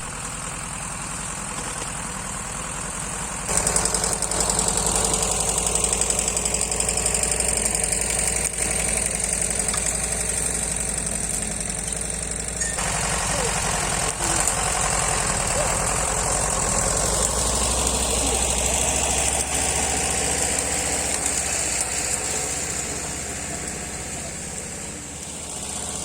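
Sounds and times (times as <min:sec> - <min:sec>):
chainsaw idling: 0:00.0 - 0:26.0.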